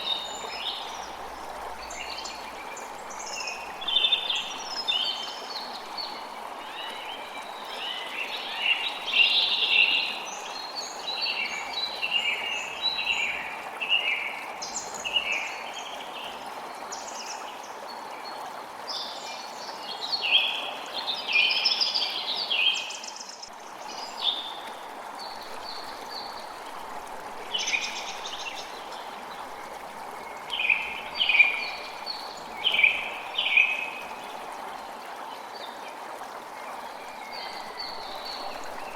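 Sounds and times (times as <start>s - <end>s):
creek water running: 0.0s - 38.9s
songbirds chirping: 27.5s - 34.8s.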